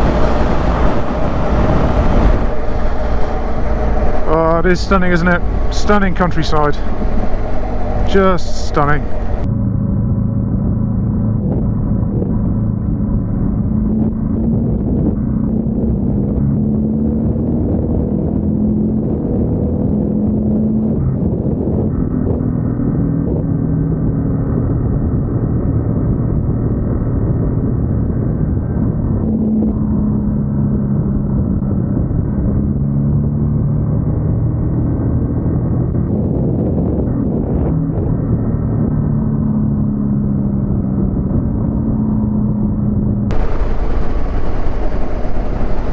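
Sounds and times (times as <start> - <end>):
motorcycle engine cruising: 0.0 - 45.9
road and wind noise: 0.0 - 45.9.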